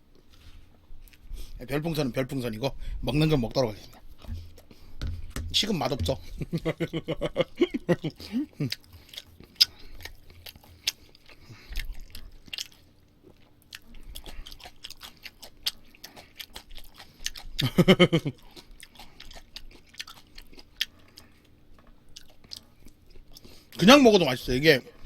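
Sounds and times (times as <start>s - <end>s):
chewing meat with wet mouth smacks: 6.0s - 23.8s.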